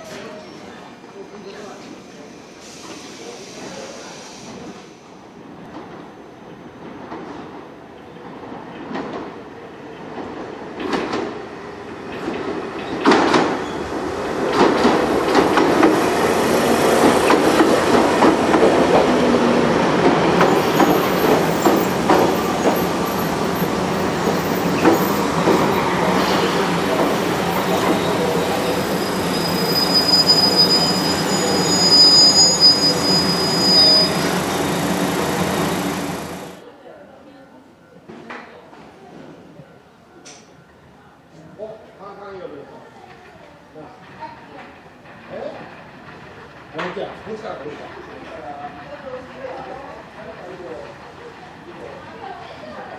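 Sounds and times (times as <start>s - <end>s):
train rumbling past: 1.6s - 36.6s
high brake squeal: 24.4s - 36.2s.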